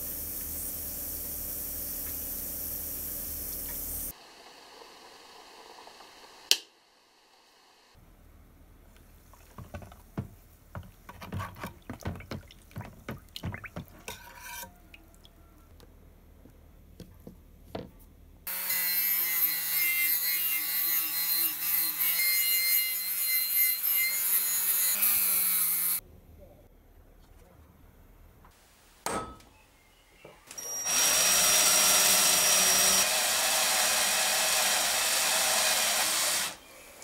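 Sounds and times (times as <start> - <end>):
wire brush wheel scrubbing steel: 13.9 - 14.9.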